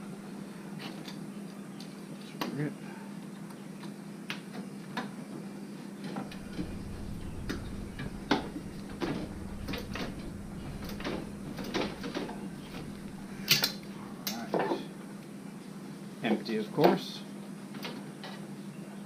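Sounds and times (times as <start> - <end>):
steady low hum: 6.2 - 14.5.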